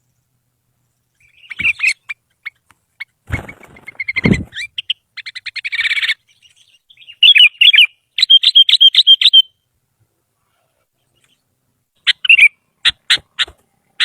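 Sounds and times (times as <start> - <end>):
bird singing: 0.0 - 9.7, 11.0 - 14.0.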